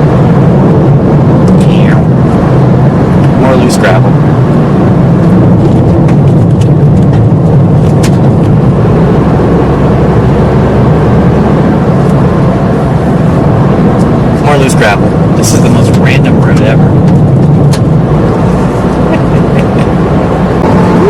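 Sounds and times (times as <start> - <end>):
car driving on gravel: 0.0 - 21.0
gravel striking car: 5.3 - 8.6.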